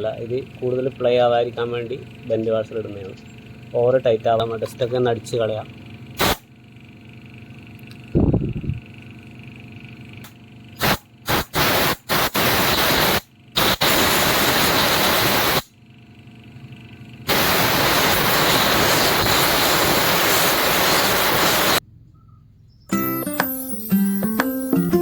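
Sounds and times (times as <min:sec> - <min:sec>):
air blower blasts: 0:06.2 - 0:06.5, 0:10.8 - 0:15.7, 0:17.3 - 0:21.8.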